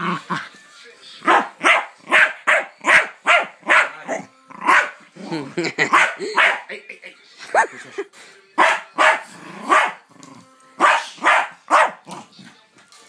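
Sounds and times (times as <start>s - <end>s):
dog barking excitedly: 1.3s - 4.0s, 4.6s - 5.0s, 5.9s - 6.7s, 8.6s - 10.0s, 10.8s - 12.0s.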